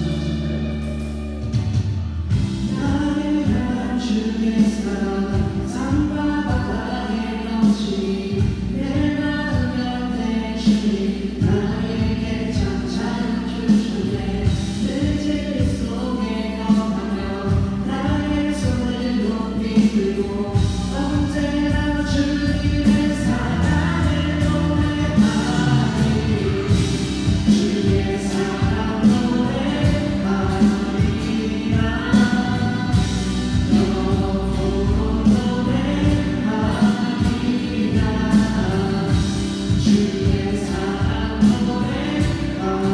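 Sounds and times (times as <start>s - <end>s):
group singing worship song: 0.0s - 42.9s
instrumental accompaniment: 22.8s - 42.9s.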